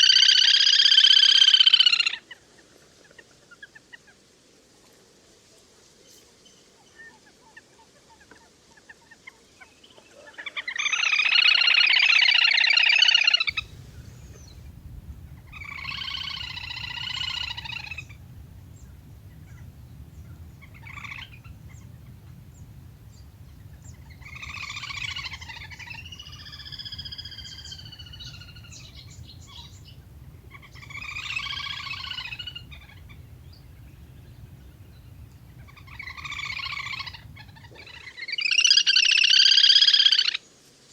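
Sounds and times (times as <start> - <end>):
whistling duck calls: 13.0 - 40.2
steady low hum: 13.5 - 38.0.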